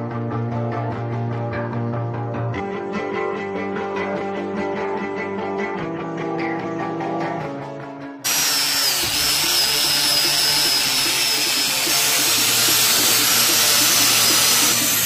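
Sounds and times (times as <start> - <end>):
small motor buzzing and whining: 8.3 - 15.0.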